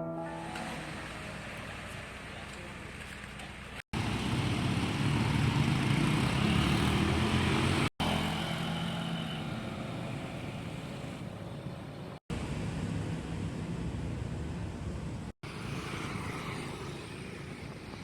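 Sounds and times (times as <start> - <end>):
passing motor vehicle engine: 4.0 - 11.3.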